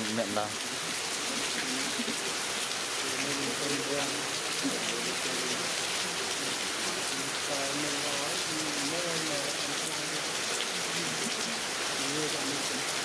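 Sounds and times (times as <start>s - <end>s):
heavy rain: 0.0s - 13.0s.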